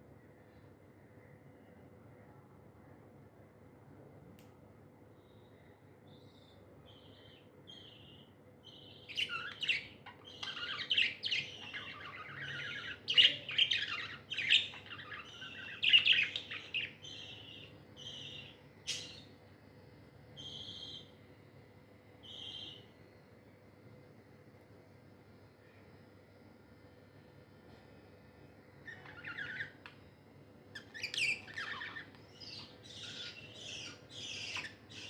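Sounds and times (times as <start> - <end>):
budgerigars chirping: 7.2 - 19.3, 28.9 - 29.7, 30.8 - 35.0.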